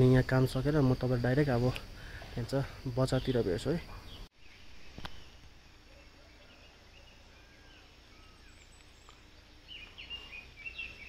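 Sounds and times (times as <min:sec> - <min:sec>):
faint bird chirps and whistles: 0:03.9 - 0:11.0.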